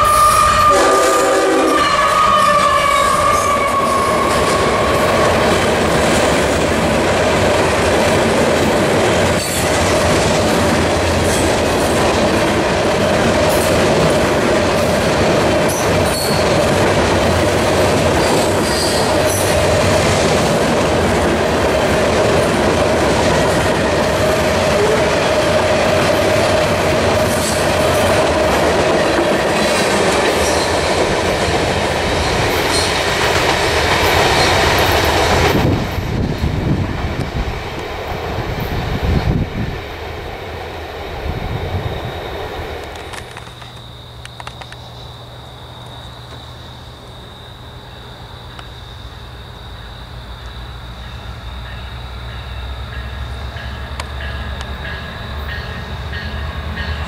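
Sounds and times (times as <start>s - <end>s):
locomotive horn: 0.0s - 5.6s, 24.7s - 25.2s
freight train wheels rumbling: 0.0s - 57.0s
ringing tone from wheels: 16.0s - 16.7s, 49.8s - 57.0s.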